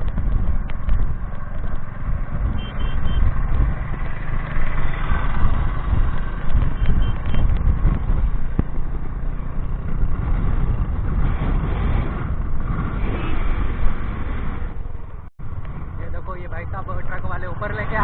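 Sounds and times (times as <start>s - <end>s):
motorcycle engine running: 0.0s - 13.2s
wind noise on microphone: 0.0s - 16.6s.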